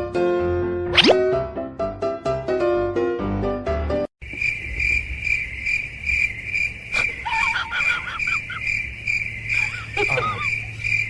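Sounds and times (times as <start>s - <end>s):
piano-like music: 0.0s - 4.1s.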